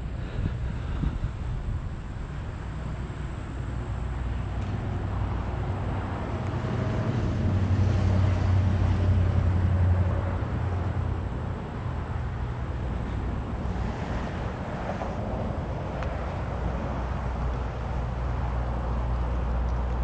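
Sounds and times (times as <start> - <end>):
wind buffeting microphone: 0.0 - 9.0
vehicle engine rumble passing: 0.0 - 20.0.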